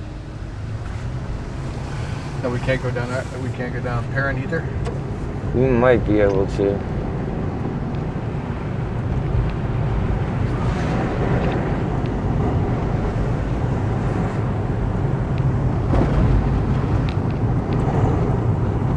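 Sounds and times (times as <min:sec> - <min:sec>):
car driving rumble: 0:00.0 - 0:18.9
wind noise on microphone: 0:06.8 - 0:18.9.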